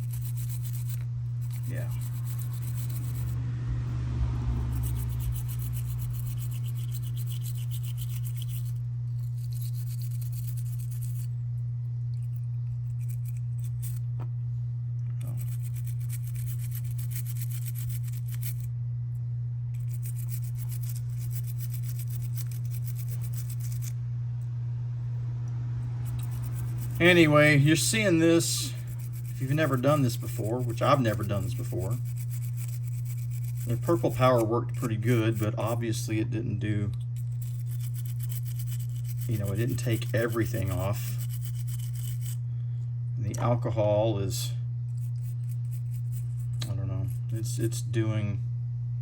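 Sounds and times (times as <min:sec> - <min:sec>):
toothbrush scrubbing plastic parts: 0:00.0 - 0:03.4, 0:04.7 - 0:11.3, 0:12.1 - 0:14.1, 0:15.2 - 0:18.7, 0:19.8 - 0:23.9, 0:26.0 - 0:36.2, 0:37.0 - 0:42.4, 0:44.9 - 0:47.8
steady low hum: 0:00.0 - 0:49.0.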